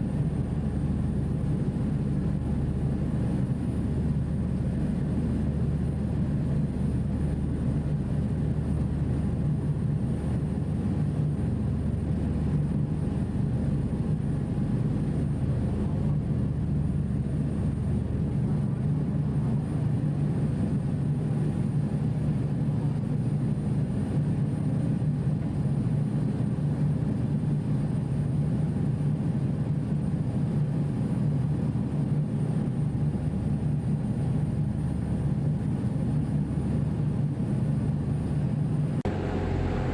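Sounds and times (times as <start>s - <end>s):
ferry engines droning: 39.0s - 39.9s.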